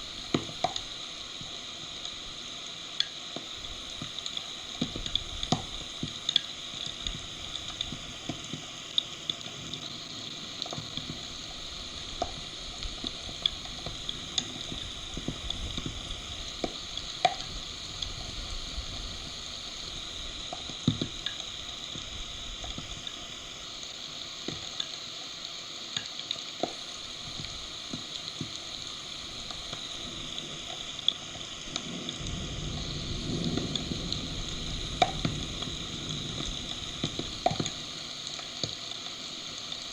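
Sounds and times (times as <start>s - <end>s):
heavy rain hissing: 0.0s - 25.9s, 26.6s - 39.9s.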